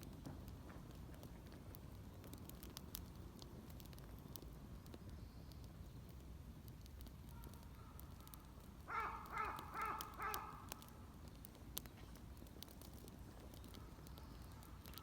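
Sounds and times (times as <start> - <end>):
bird calling: 8.9 - 10.7.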